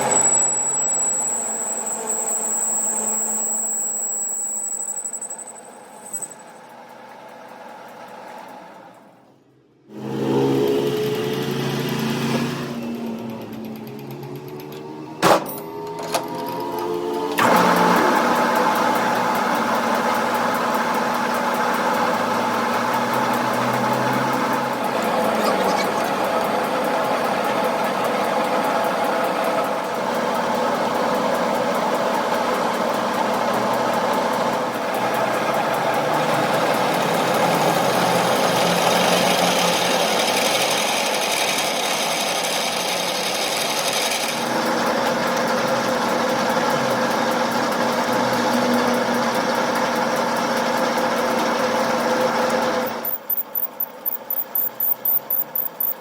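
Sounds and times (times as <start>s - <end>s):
power tool whining: 0.0s - 6.5s, 15.7s - 28.2s, 51.3s - 56.0s
fast pulsing rattle: 0.0s - 6.7s, 18.2s - 56.0s.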